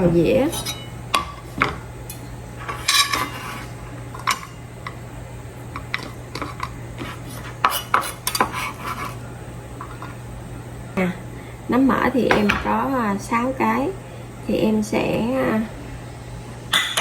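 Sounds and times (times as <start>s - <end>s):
knife and plate clinking on board: 2.6s - 4.6s, 5.8s - 9.2s.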